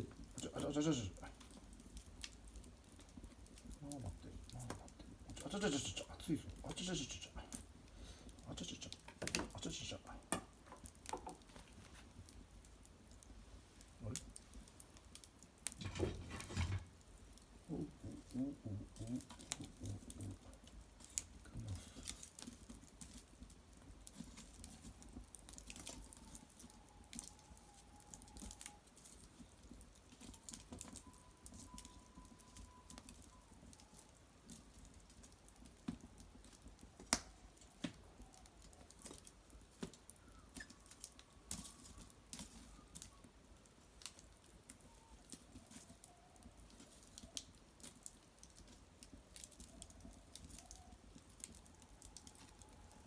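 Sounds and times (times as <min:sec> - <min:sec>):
fire crackling and popping: 0:00.0 - 0:53.0
faint thin whistling: 0:30.2 - 0:34.1, 0:40.0 - 0:43.3.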